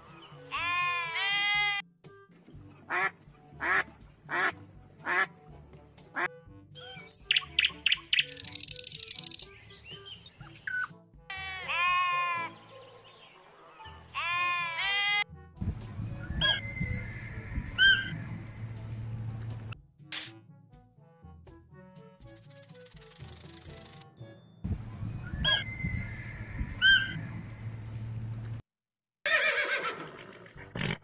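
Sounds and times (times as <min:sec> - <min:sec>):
background music: 0:00.0 - 0:28.4
sheep bleating: 0:00.5 - 0:01.8, 0:11.3 - 0:12.6, 0:14.1 - 0:15.2
duck quacking: 0:02.9 - 0:05.3
bird calls and trill: 0:06.8 - 0:11.0, 0:12.4 - 0:14.5, 0:16.1 - 0:18.8, 0:22.3 - 0:27.8.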